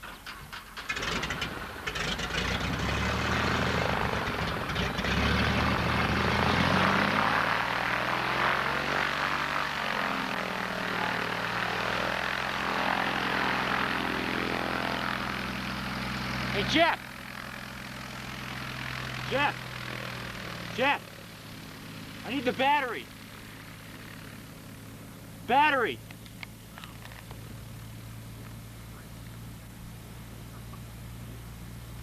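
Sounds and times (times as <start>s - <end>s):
airplane engine and propeller: 0.0s - 32.0s.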